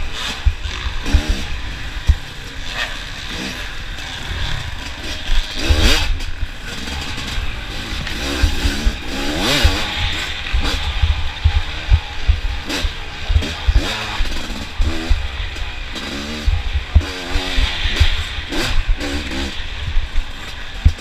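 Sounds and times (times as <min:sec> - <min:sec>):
dirt bike engines revving: 0:00.0 - 0:21.0
low thumping rumble: 0:04.3 - 0:19.0.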